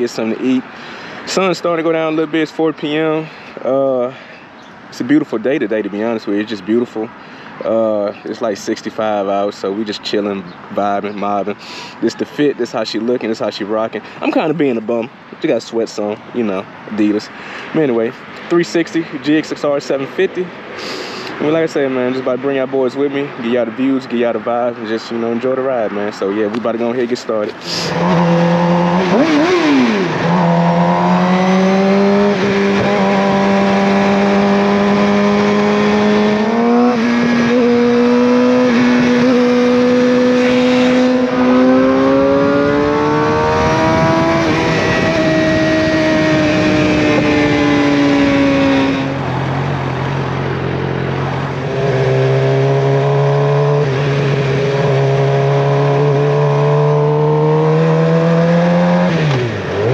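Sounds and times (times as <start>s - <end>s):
wind and road noise: 0.0s - 59.9s
motorcycle engine revving: 27.6s - 59.9s.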